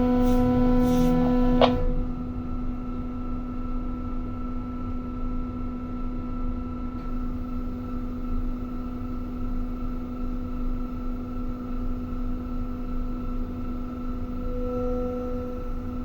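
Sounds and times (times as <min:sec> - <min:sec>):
crane machinery humming: 0:00.0 - 0:03.0, 0:07.0 - 0:16.0.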